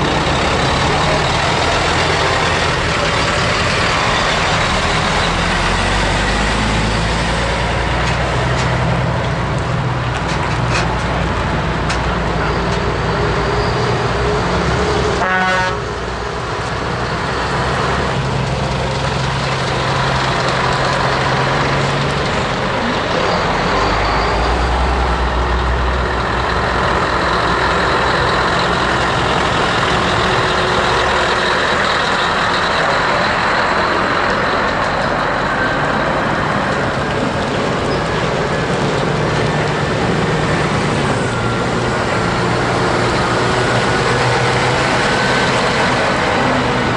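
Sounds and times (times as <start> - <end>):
truck diesel engines passing: 0.0 - 46.9
truck horn toot: 15.2 - 16.0.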